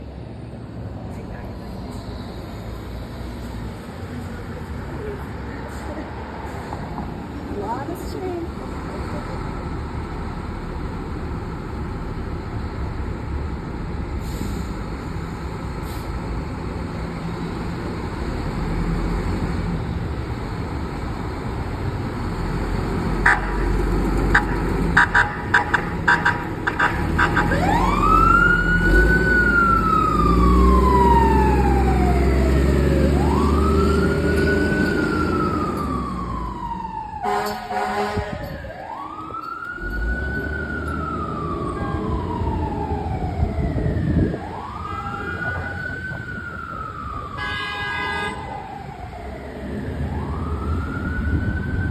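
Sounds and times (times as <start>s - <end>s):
fire truck engine rumble: 0.0s - 51.9s
siren wailing: 23.2s - 51.9s
air horn blasts: 24.3s - 27.8s, 37.2s - 38.6s, 47.4s - 48.5s.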